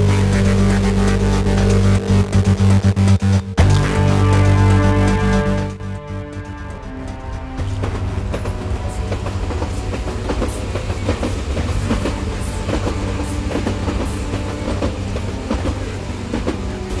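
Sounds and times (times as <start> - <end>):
train rumbling: 0.0 - 17.0
wheels clicking over rails: 7.6 - 17.0.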